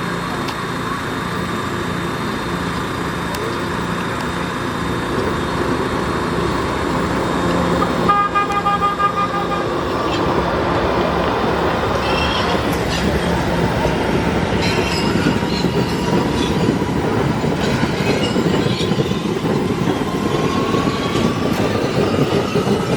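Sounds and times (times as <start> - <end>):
train rumble and hum: 0.0 - 22.9
train horn: 7.8 - 10.3, 12.0 - 12.8.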